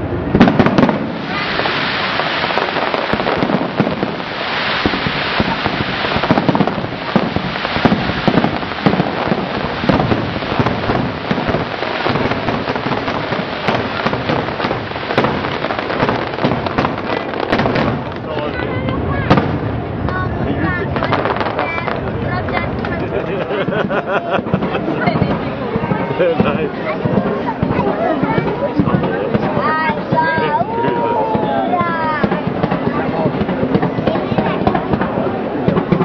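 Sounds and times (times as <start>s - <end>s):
fireworks bangs and crackling: 0.0s - 36.0s
loud firework boom: 0.3s - 23.0s.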